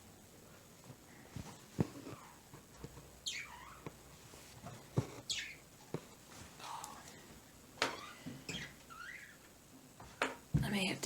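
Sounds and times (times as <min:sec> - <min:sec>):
bird chirping: 0:03.2 - 0:03.8, 0:05.2 - 0:05.7.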